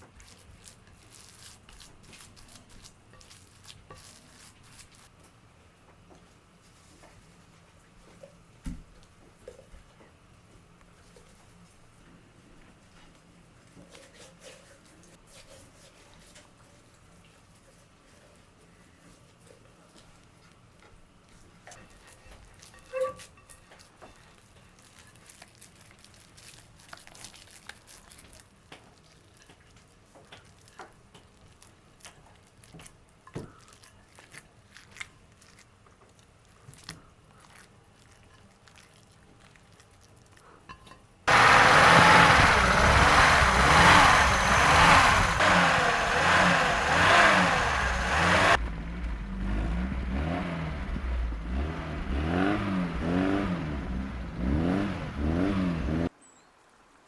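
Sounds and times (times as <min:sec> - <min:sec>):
car engine revving: 0:41.3 - 0:56.1.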